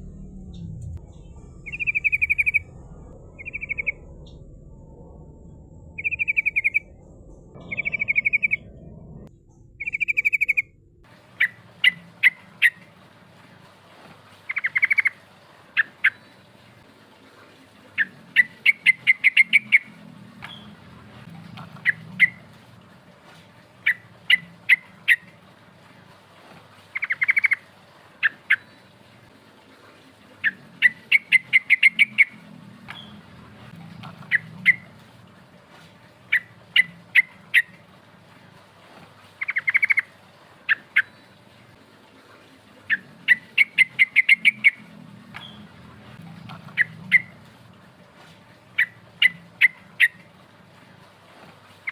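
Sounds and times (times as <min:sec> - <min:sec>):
bulbul chirping song: 0:00.0 - 0:04.9, 0:06.0 - 0:10.8, 0:14.5 - 0:15.2, 0:27.0 - 0:27.6, 0:30.4 - 0:33.2, 0:39.4 - 0:40.1, 0:42.9 - 0:44.8.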